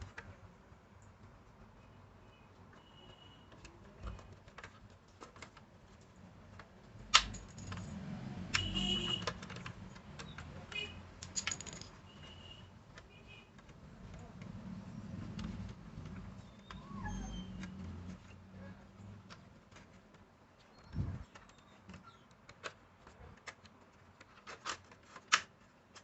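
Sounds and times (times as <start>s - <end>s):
clicks and clinks of tools: 11.2s - 12.0s.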